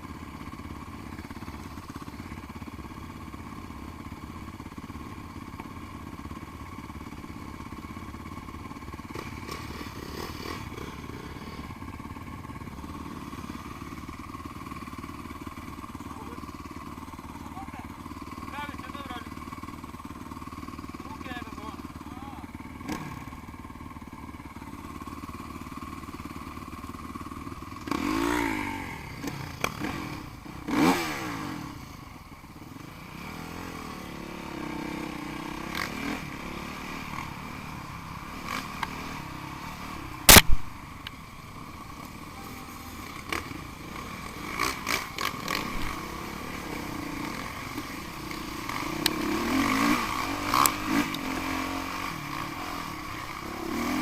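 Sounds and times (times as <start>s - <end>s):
motorcycles revving past: 9.0s - 14.0s, 22.8s - 23.3s, 27.8s - 32.1s, 32.7s - 40.5s, 42.0s - 54.0s
sharp knock: 40.3s - 40.7s.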